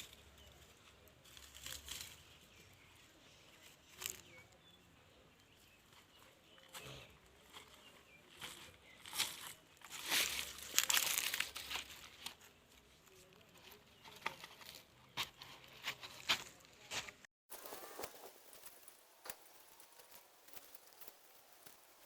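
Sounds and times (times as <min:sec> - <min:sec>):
rustling and crinkling: 0:00.0 - 0:04.8, 0:05.4 - 0:22.0.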